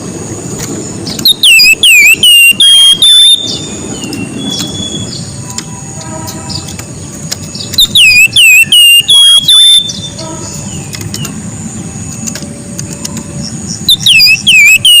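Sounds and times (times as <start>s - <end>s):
bird whistling sharp notes: 1.1s - 5.3s.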